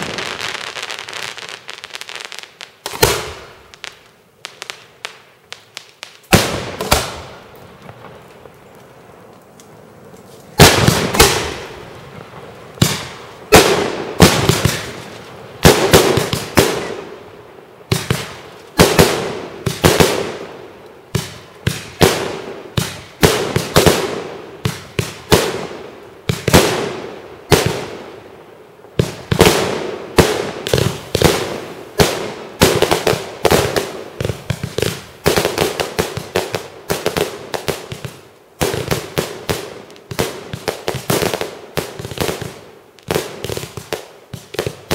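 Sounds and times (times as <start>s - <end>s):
fireworks bursting: 0.0s - 44.9s.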